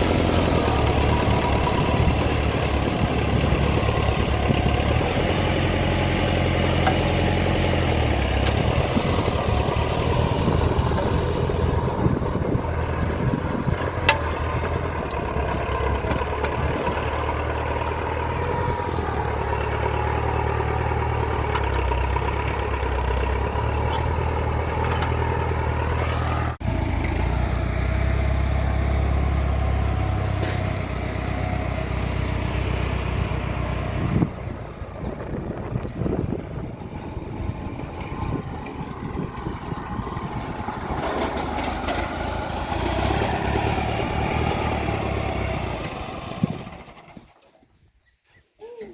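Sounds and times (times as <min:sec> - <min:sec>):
tractor diesel engine running: 0:00.0 - 0:47.5.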